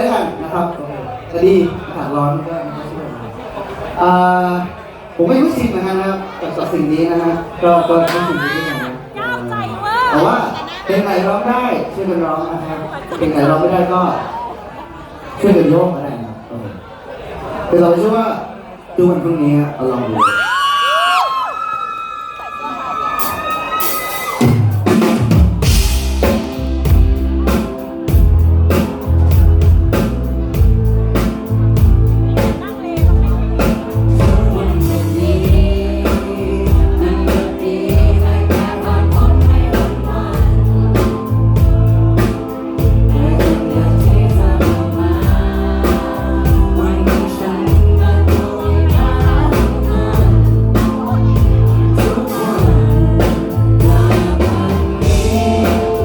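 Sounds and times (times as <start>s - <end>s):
live band playing: 7.4s - 10.9s, 22.8s - 56.0s
drum kit beat: 23.2s - 56.0s
person singing: 31.2s - 56.0s.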